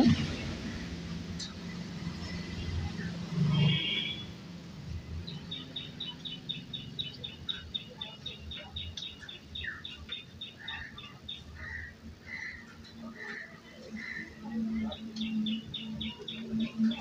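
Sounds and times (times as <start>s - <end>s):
bird chirping: 5.2s - 11.8s, 13.9s - 17.0s.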